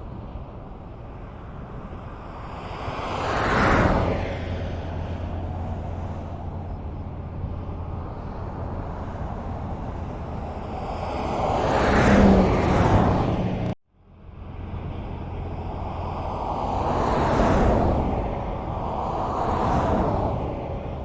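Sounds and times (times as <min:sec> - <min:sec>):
highway road rumble: 0:00.0 - 0:21.0
vehicle passing close: 0:02.2 - 0:13.8.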